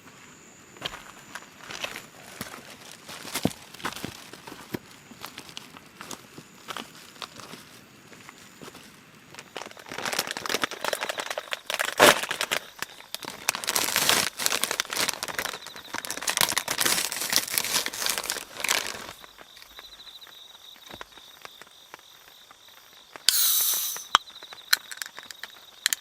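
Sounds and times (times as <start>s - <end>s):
crinkling and rustling handling: 1.8s - 19.8s.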